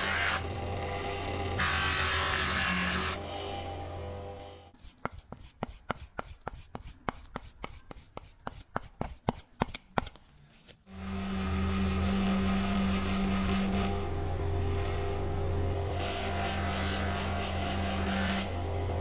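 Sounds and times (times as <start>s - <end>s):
electric power tool humming: 10.9s - 19.0s.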